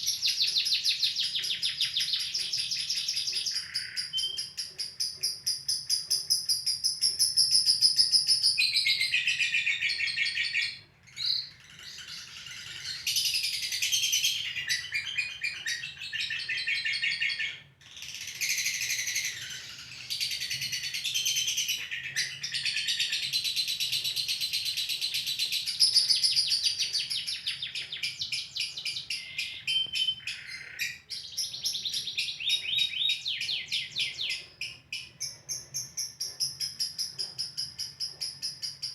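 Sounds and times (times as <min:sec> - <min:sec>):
lovebird chattering trill: 0:00.0 - 0:38.9.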